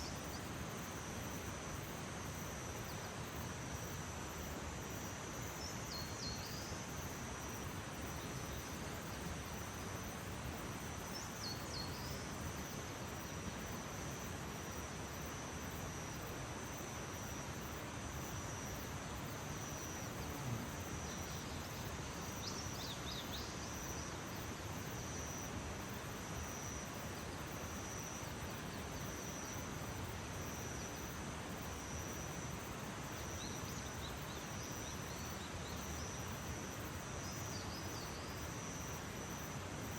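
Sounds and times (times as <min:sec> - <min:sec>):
outdoor background hiss: 0:00.0 - 0:39.9.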